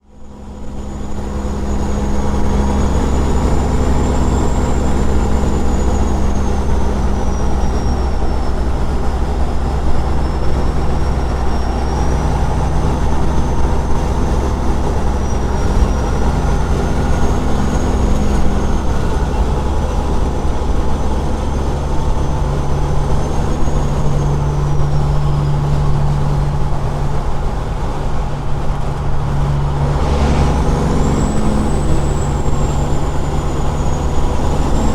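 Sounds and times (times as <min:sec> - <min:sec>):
diesel truck engine drone: 0:00.0 - 0:34.9
high wavering whine: 0:29.1 - 0:34.9.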